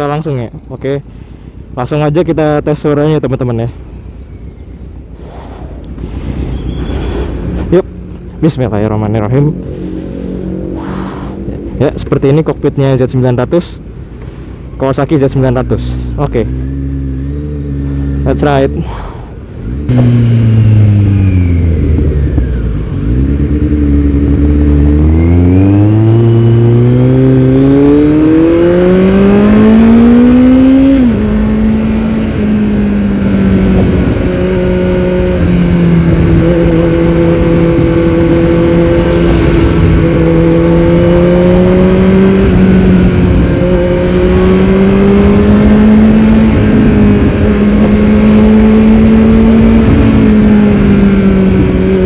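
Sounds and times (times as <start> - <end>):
motorcycle engine revving: 9.0 - 11.8, 15.6 - 18.8, 19.6 - 52.0.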